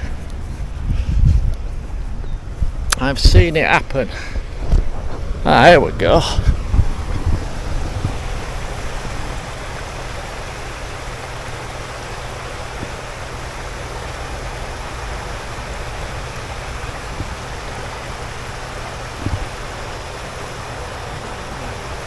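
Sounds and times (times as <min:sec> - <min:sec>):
water rushing over weir: 0:02.8 - 0:22.0.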